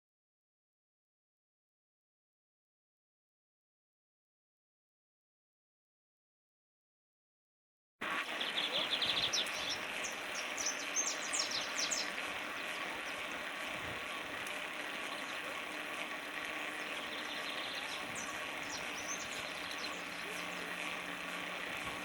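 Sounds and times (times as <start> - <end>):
birds chirping: 8.0 - 22.0.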